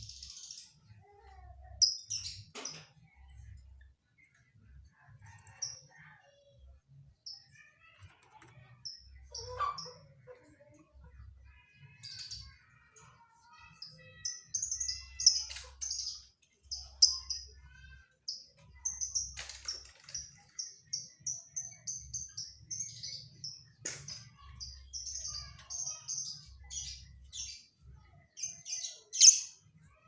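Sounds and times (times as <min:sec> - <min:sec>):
canary singing: 0:13.5 - 0:23.8, 0:24.4 - 0:29.6.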